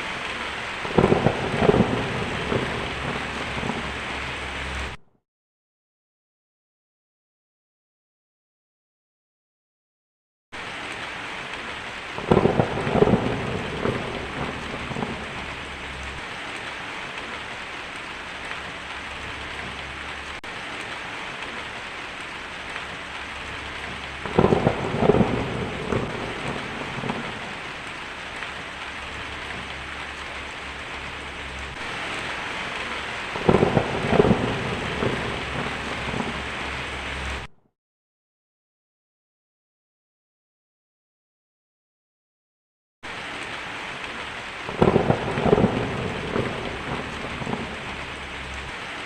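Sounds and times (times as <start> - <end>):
steady rain: 0.0 - 5.0, 10.6 - 37.5, 43.0 - 49.0
thunder rolling: 0.4 - 5.0, 12.2 - 17.4, 22.7 - 37.5, 44.7 - 48.9.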